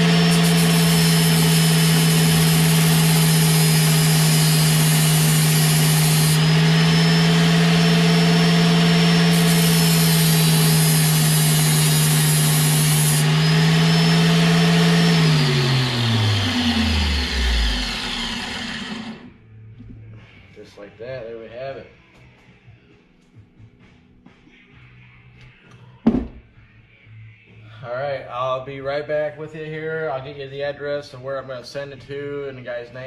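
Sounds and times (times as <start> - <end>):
electric drill whining: 0.0 - 19.4.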